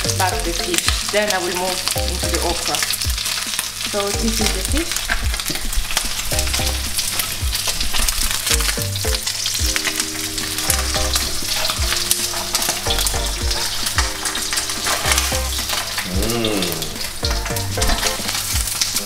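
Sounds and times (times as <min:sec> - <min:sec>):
fish frying with crackling pops: 0:00.0 - 0:19.0.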